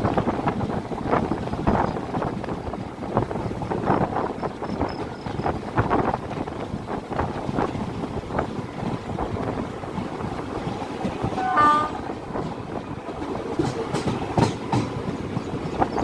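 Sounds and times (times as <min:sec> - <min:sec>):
train rumble and rushing air: 0:00.0 - 0:16.0
wheels clacking over rail joints: 0:00.0 - 0:16.0
train horn blast: 0:11.3 - 0:12.1.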